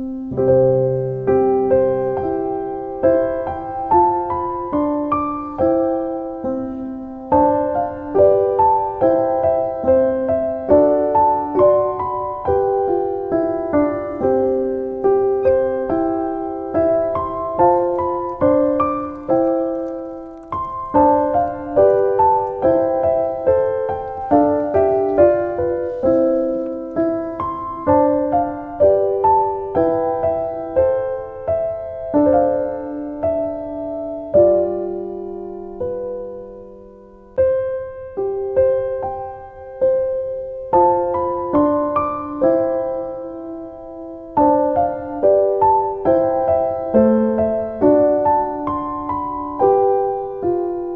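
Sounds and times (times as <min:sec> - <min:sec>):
gentle solo piano piece: 0:00.0 - 0:50.9.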